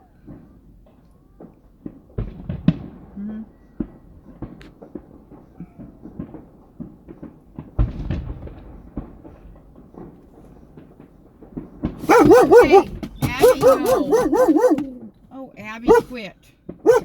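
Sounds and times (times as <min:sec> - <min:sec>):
fireworks pops and crackles: 0:00.0 - 0:12.1, 0:12.8 - 0:14.1.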